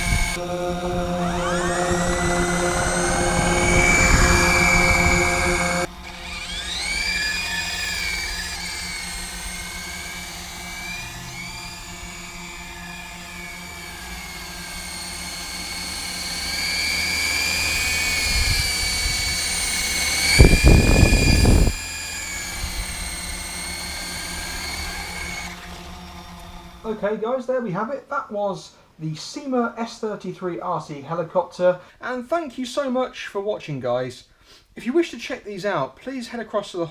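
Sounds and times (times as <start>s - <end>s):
loud burst of noise: 0.0s - 26.8s
toy helicopter rotor motors whining: 0.0s - 27.1s.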